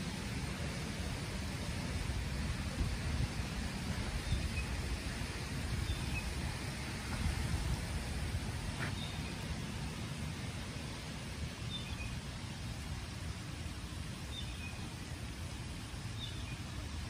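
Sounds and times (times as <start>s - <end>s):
low uneven rumble: 0.0s - 17.0s
rain falling on a pond: 0.0s - 17.0s
faint bird chirps: 11.6s - 12.3s.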